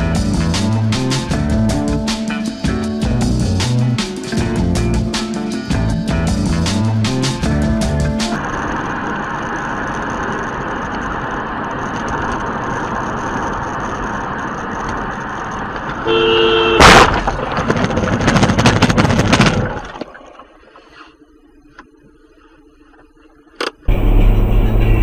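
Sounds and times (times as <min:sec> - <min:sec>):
road noise: 0:00.0 - 0:19.8, 0:23.6 - 0:25.0
car horn: 0:16.0 - 0:17.1
metal crunching and scraping: 0:16.8 - 0:20.0
vehicle crash impact: 0:16.8 - 0:20.0.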